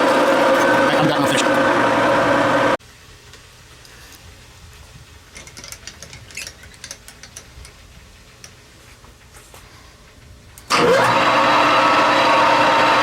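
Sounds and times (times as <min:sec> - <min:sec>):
metal lathe running: 0:00.0 - 0:02.8, 0:10.7 - 0:13.0.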